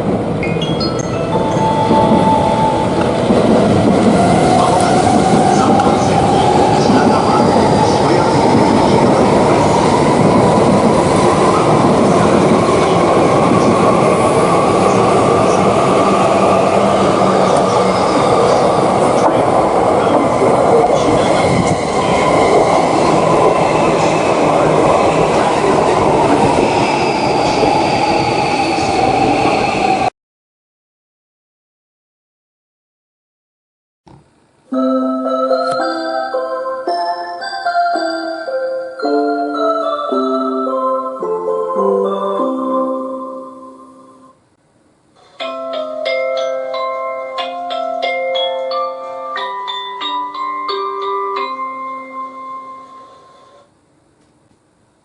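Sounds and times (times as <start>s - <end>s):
train rolling and rushing: 0.0s - 30.1s
train whine: 0.0s - 30.1s, 52.2s - 54.1s.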